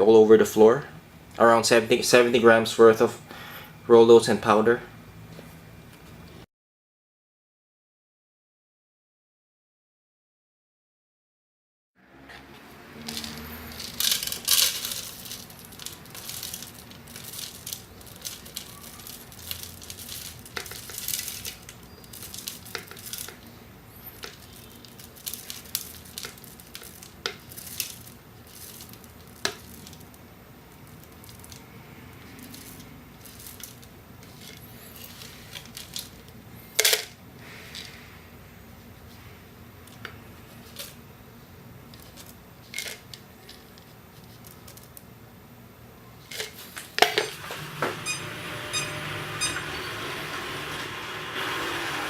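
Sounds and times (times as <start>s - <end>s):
oat flakes crackling and rattling: 13.0s - 36.9s, 41.9s - 45.1s
robot vacuum motor hum: 47.4s - 52.0s.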